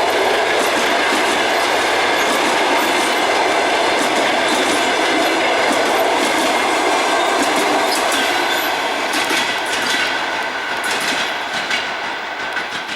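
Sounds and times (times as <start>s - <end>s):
train wheels rushing on rails: 0.0s - 12.9s
wheels clicking over rail joints: 0.0s - 12.9s.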